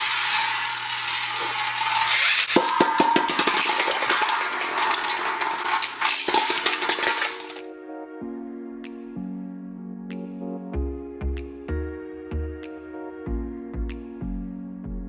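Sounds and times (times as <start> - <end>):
spinning tops whirring: 0.0 - 7.6
spinning tops clacking together: 0.0 - 7.7.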